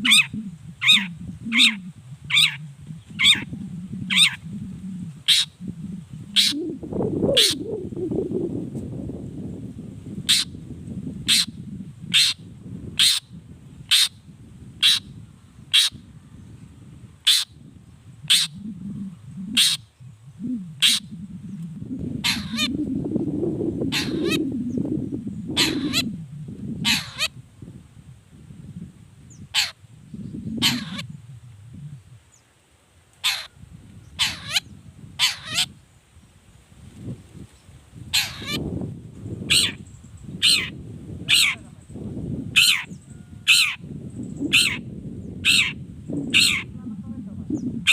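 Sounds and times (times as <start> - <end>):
bird calling sharply: 23.9 - 24.4, 38.2 - 38.6.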